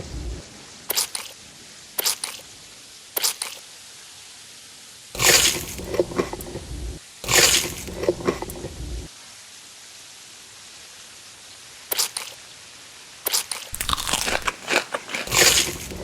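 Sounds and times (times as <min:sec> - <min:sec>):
crunchy squishy chewing: 0:05.2 - 0:06.5, 0:13.5 - 0:16.0
wet mouth clicks: 0:13.8 - 0:16.0.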